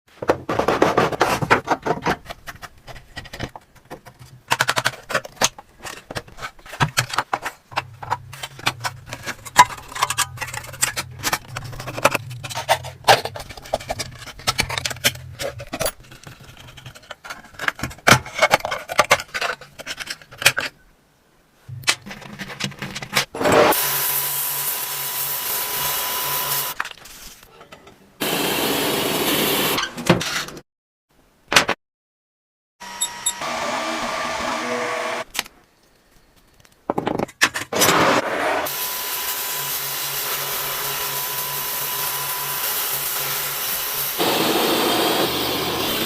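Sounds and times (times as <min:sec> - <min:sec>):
metal parts and tools rattling: 0:01.6 - 0:20.7.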